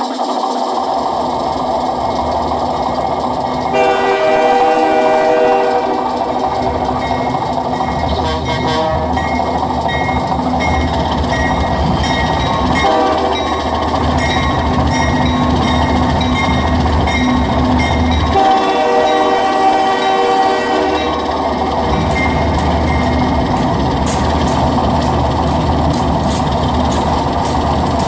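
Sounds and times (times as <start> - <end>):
model locomotive engine rumble: 0.0 - 28.0
multi-note train horn: 3.7 - 6.4, 8.1 - 9.2, 12.8 - 13.5, 18.3 - 21.3.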